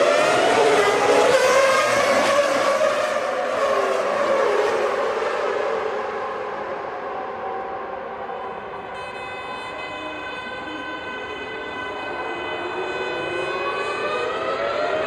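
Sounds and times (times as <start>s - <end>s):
racing car engines passing: 0.0s - 7.0s.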